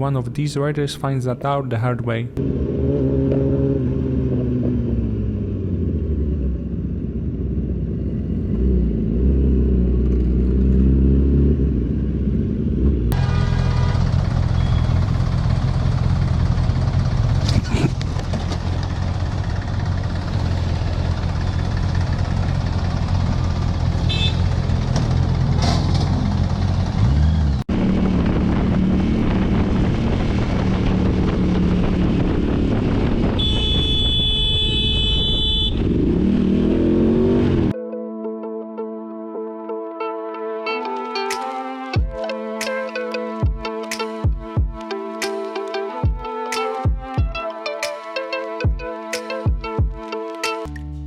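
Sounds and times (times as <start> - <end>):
vehicle engine and road noise: 0.0 - 37.8, 48.4 - 51.0
engine running: 2.4 - 37.7
vehicle horn: 13.1 - 15.0, 23.9 - 24.6, 33.4 - 35.9.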